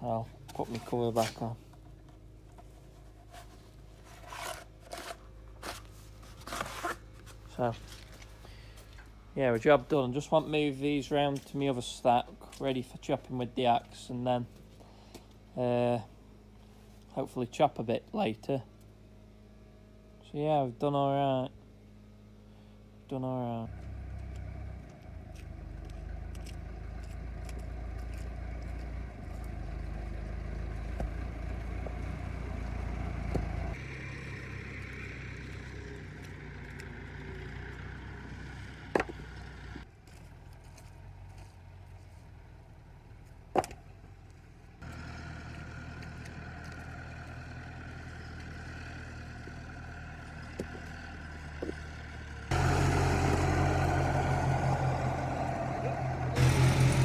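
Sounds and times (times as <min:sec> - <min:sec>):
tractor engine running: 0:23.7 - 0:57.0.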